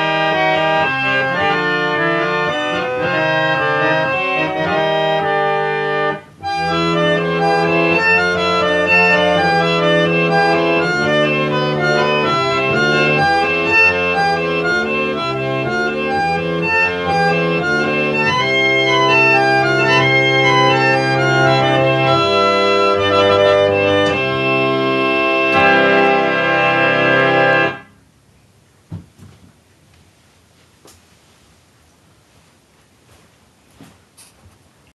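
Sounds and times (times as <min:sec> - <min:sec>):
reed organ playing: 0:00.0 - 0:28.0.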